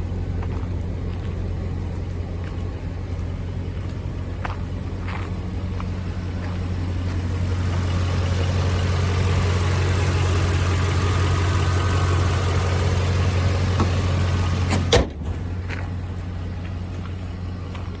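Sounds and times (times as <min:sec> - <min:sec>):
truck engine running: 0:00.0 - 0:18.0
sharp thump: 0:14.7 - 0:15.4.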